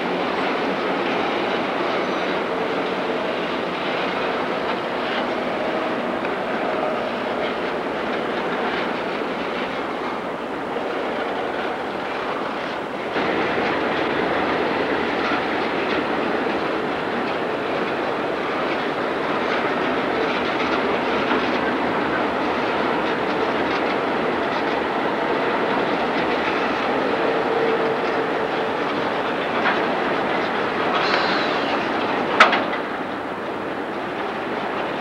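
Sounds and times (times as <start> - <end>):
freight train wheels clattering: 0.0 - 35.0.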